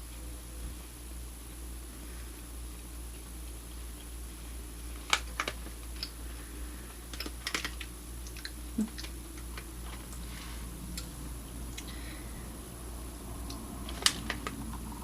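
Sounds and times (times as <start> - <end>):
low room hum: 0.0 - 15.0
person chewing jerky: 4.9 - 12.1.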